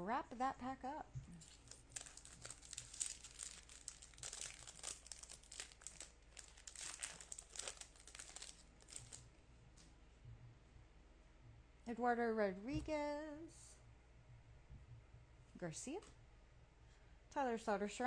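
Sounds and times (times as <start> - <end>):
foil wrapper crinkling: 1.4 - 9.3.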